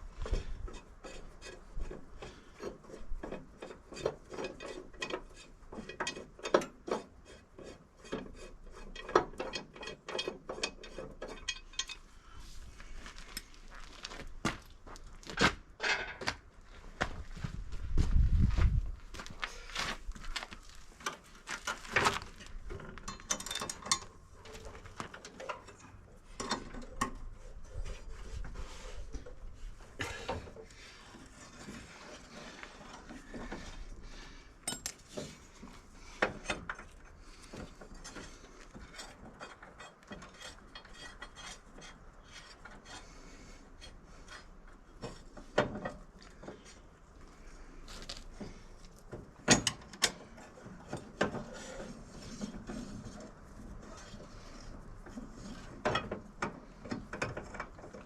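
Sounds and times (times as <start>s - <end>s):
metallic clicks and clinks of wrenches: 0.2s - 12.4s, 21.0s - 43.1s, 48.0s - 58.0s.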